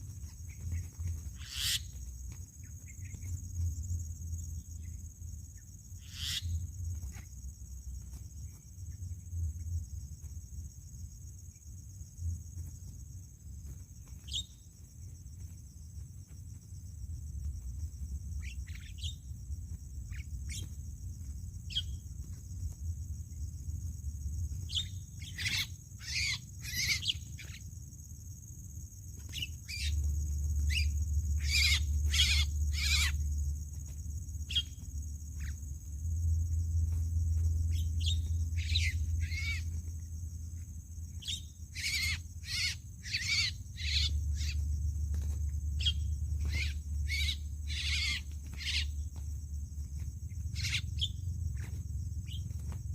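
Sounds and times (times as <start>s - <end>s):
starlings calling: 0.2s - 2.0s, 6.0s - 6.6s, 24.7s - 27.6s, 29.3s - 30.0s, 30.7s - 33.2s, 34.5s - 34.8s, 37.7s - 39.9s, 41.2s - 44.6s, 45.8s - 49.1s, 50.4s - 52.6s.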